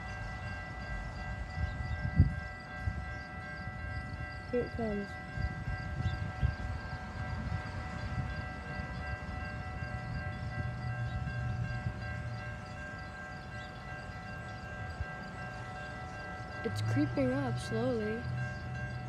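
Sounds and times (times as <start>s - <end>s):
high ringing tones: 0.0s - 19.0s
train rumbling: 0.0s - 19.0s.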